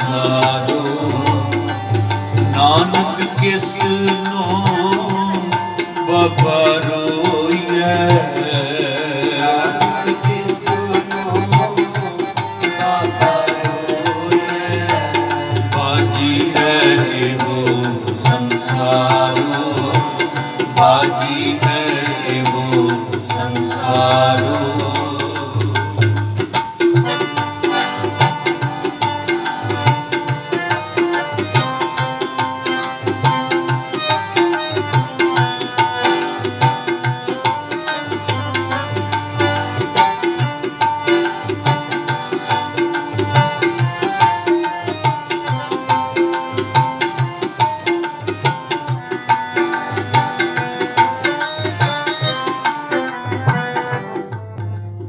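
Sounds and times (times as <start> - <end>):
tabla rhythm: 0.0 - 55.0
held chordal melodic accompaniment: 27.0 - 55.0.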